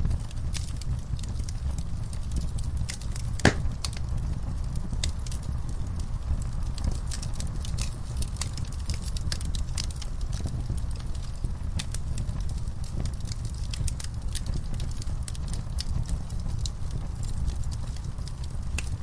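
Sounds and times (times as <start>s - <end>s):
wood fire crackling: 0.0s - 19.0s
sharp pops and snaps: 2.3s - 4.0s.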